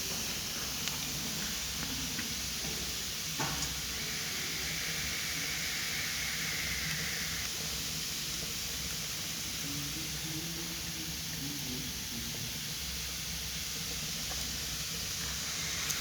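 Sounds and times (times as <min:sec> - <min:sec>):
fire crackle: 0:00.0 - 0:09.6, 0:13.3 - 0:16.0
fire hissing: 0:00.0 - 0:16.0.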